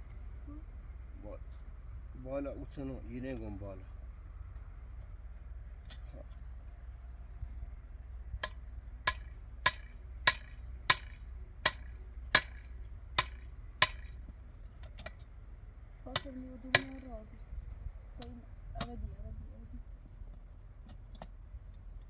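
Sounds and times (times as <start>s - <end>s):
hand tool striking hard object: 8.4s - 15.3s, 16.1s - 17.1s.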